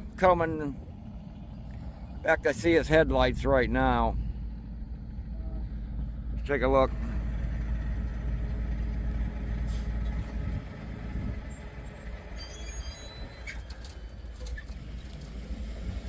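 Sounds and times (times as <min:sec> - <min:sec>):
heavy vehicle engine rumble: 0:00.0 - 0:16.0.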